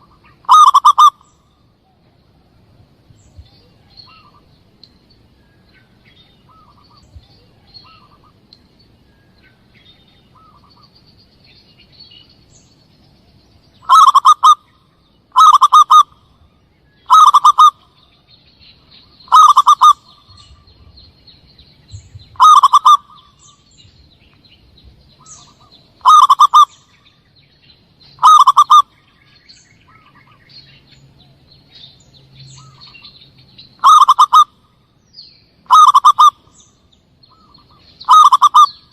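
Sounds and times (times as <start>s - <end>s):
dove rolling coos: 0.0s - 1.2s, 13.8s - 14.6s, 15.4s - 16.2s, 17.1s - 17.8s, 19.3s - 20.6s, 22.4s - 23.3s, 25.3s - 26.8s, 28.2s - 28.9s, 33.8s - 34.5s, 35.7s - 36.4s, 37.3s - 38.8s
faint short bird calls: 0.0s - 2.6s, 3.2s - 12.8s, 13.7s - 21.1s, 21.8s - 34.8s, 35.6s - 38.9s.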